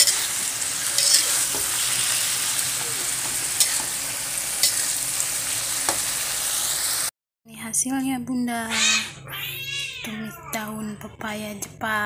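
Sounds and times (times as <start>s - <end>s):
spatula scraping a pan: 0.0s - 4.0s, 4.6s - 5.1s
leaves sizzling in a wok: 0.0s - 7.1s.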